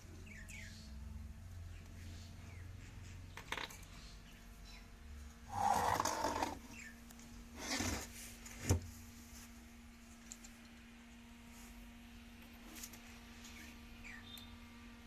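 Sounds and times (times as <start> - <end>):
scraping rubbing noises: 5.5 - 6.6, 7.5 - 8.5.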